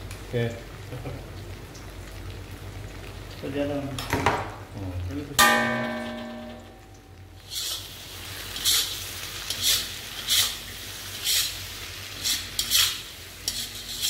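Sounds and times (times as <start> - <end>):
food sizzling in a wok: 0.0 - 14.0
spatula scraping a wok: 7.4 - 14.0.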